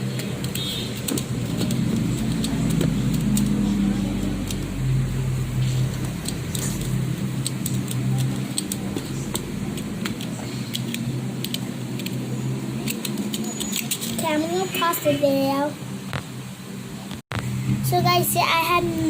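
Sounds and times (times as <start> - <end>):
sharp clicks and taps: 0.0 - 4.7, 5.6 - 12.2
low motor hum: 0.0 - 13.3.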